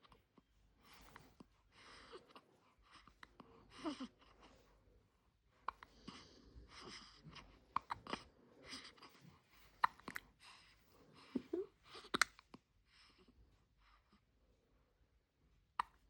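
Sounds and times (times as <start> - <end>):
baby breathing softly: 0.7 - 14.3
baby mouth clicks and smacks: 9.8 - 10.2, 12.1 - 12.6, 15.8 - 16.0.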